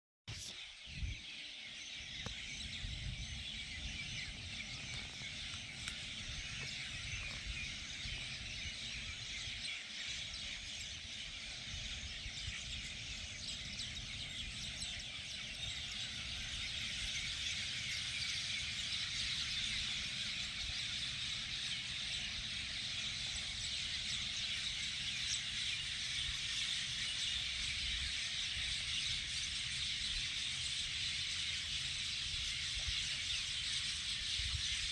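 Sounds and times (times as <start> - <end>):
chorus of high chirping: 0.3 - 34.9
wind rumble on microphone: 0.8 - 34.9.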